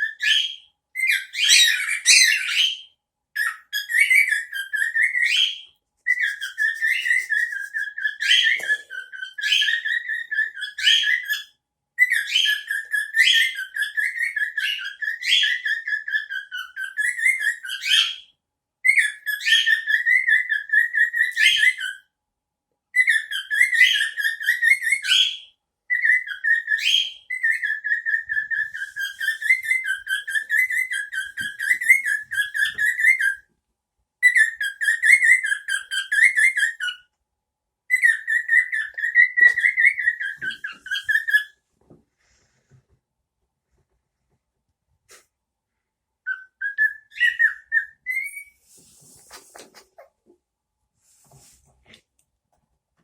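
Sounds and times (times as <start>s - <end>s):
cockatiel whistling: 0.0s - 18.2s, 18.9s - 22.0s, 23.0s - 33.5s, 34.2s - 37.0s, 37.9s - 41.5s, 46.3s - 48.6s.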